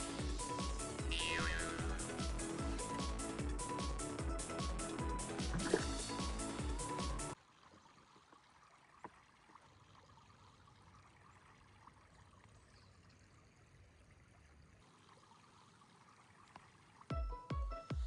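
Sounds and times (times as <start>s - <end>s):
faint flow of shallow river: 7.3s - 17.2s.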